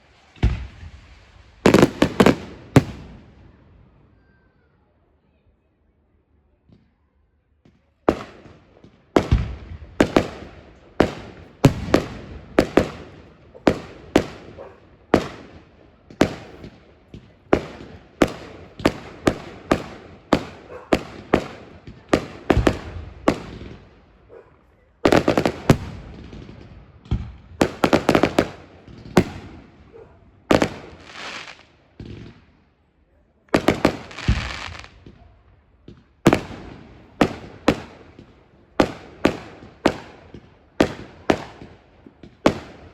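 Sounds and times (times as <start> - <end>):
firework crackle: 0.0 - 3.1, 30.5 - 32.0, 33.6 - 35.4.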